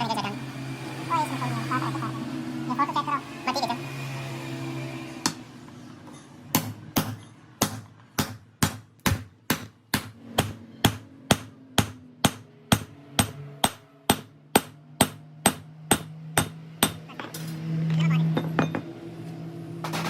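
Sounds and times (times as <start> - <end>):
hammer striking metal: 6.1 - 17.5.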